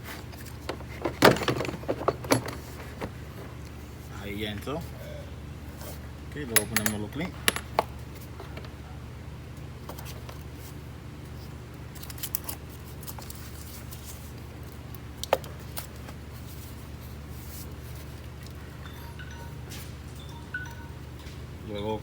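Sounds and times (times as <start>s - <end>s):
steady low hum: 16.2s - 22.0s.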